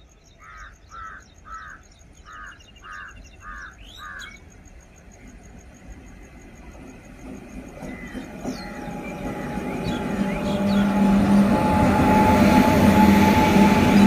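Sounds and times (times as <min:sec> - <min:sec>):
freight train rumble: 0:00.0 - 0:14.0
crow cawing: 0:00.4 - 0:04.4
wheels squealing on rail: 0:06.8 - 0:14.0.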